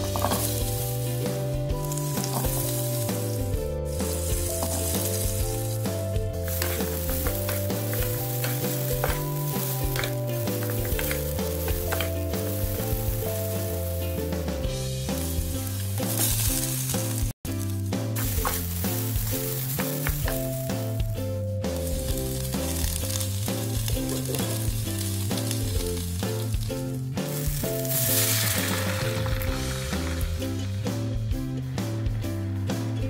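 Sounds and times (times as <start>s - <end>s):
water hissing in hot pan: 0.0s - 31.2s
food sizzling in oil: 0.0s - 31.3s
background music: 0.0s - 33.0s
wooden spatula stirring: 1.9s - 14.6s.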